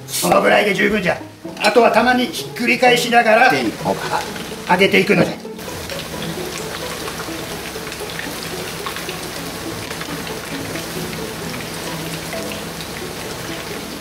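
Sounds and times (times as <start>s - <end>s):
chicken deep-frying in oil: 0.5s - 14.0s.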